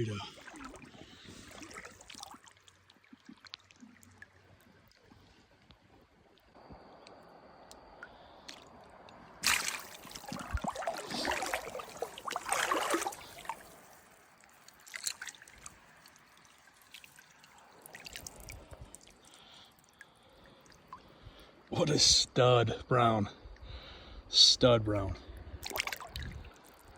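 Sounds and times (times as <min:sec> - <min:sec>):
water dripping and trickling: 0:00.0 - 0:06.6, 0:07.7 - 0:21.7, 0:25.6 - 0:26.9
water splashing loudly: 0:09.4 - 0:13.7.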